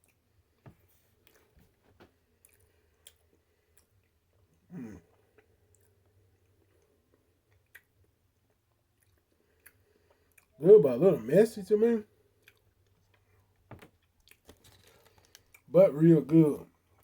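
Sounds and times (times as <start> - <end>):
person chewing: 2.3 - 4.4, 5.0 - 10.6, 12.3 - 15.7.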